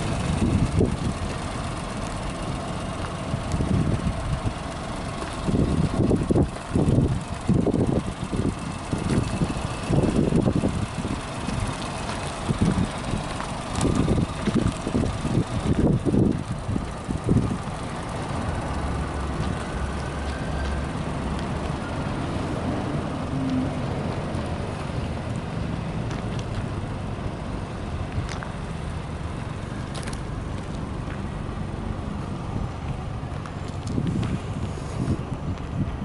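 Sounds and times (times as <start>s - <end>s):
car engine idling: 0.0s - 36.0s
wind on microphone: 0.2s - 1.2s, 5.4s - 11.8s, 12.5s - 17.7s, 33.8s - 36.0s.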